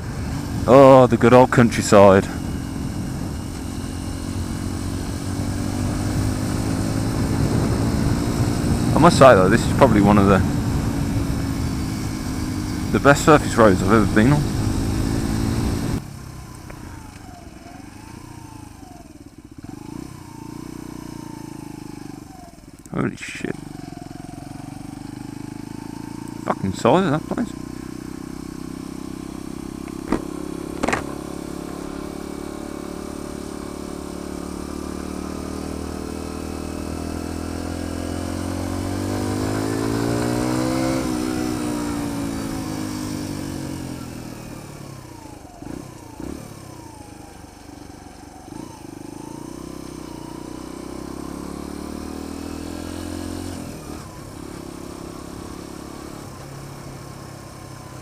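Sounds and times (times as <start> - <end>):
motorcycle engine revving: 0.0 - 58.0
sharp knocks: 29.9 - 31.2.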